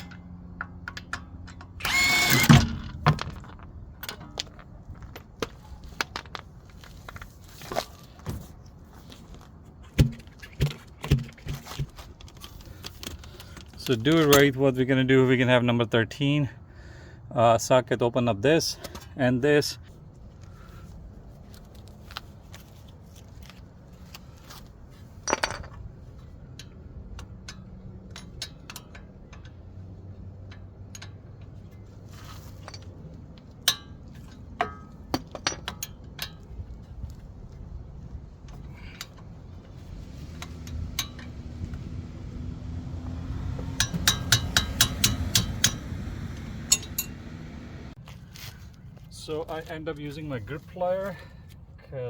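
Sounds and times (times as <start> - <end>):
steel tools clinking on bolts: 40.4 - 41.4, 43.6 - 47.7.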